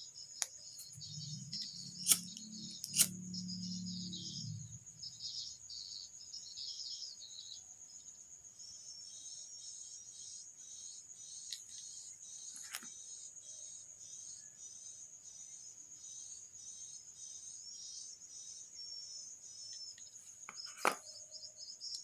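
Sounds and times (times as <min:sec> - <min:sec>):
crickets chirping: 0:00.0 - 0:22.0
sharp clicks: 0:00.4 - 0:03.2
low hum: 0:00.8 - 0:05.3.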